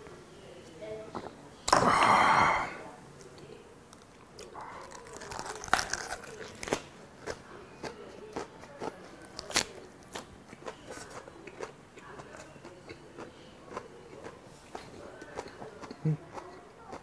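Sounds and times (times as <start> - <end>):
crisp chewing crunches: 3.9 - 17.0.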